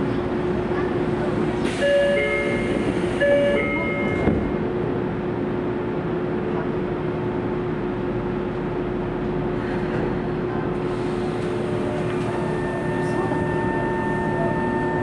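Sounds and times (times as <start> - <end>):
low rumble of train equipment: 0.0 - 15.0.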